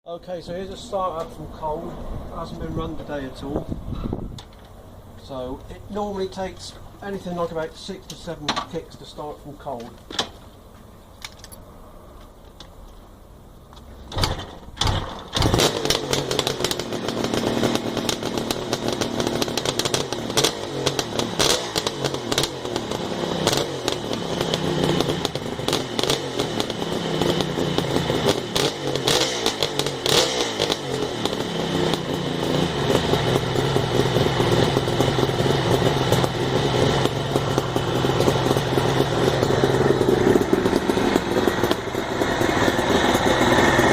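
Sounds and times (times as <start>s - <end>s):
motorcycle kickstart thumps: 8.1s - 8.8s, 13.8s - 42.0s
motorcycle engine revving: 14.2s - 43.9s.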